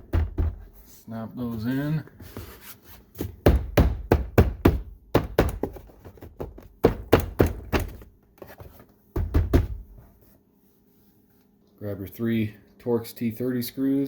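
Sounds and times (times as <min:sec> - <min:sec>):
hand thumping plastic door panel: 0:00.0 - 0:00.7, 0:03.4 - 0:08.1, 0:09.2 - 0:10.0.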